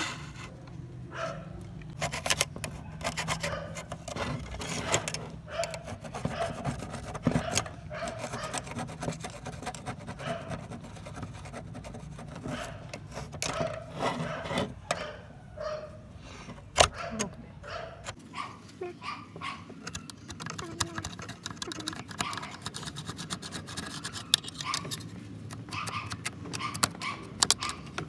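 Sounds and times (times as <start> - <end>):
hand rubbing and scraping: 1.9 - 17.1, 19.4 - 28.0
sharp clicks and light knocks: 19.4 - 28.0.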